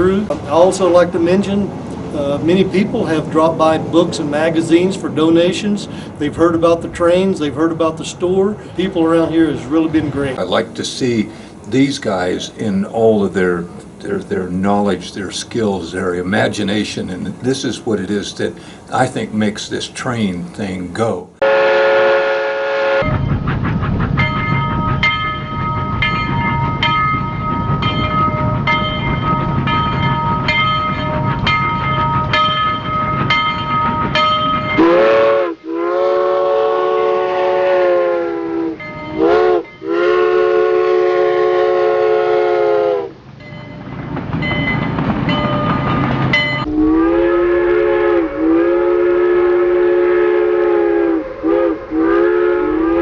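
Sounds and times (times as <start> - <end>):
train whistle blasts: 21.4 - 23.3, 34.8 - 43.2, 46.6 - 53.0.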